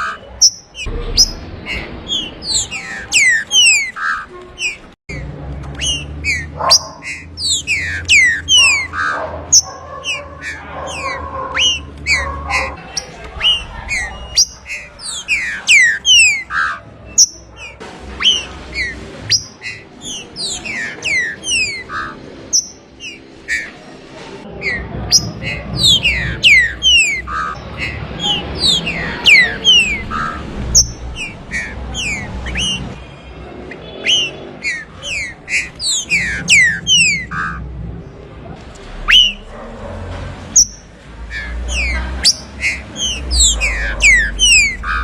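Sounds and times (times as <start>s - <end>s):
bird whistling descending notes: 39.1s - 39.4s.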